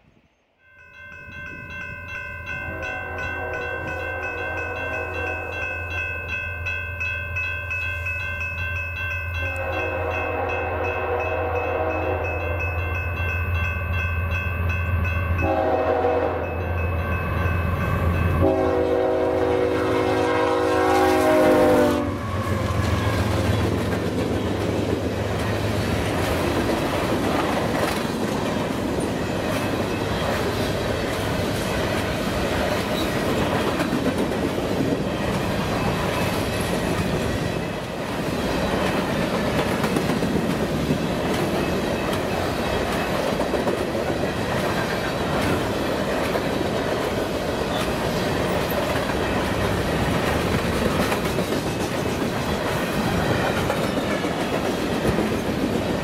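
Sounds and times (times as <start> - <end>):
train air horn blasts: 2.7 - 5.7, 9.4 - 12.6, 15.4 - 16.6, 18.0 - 23.5.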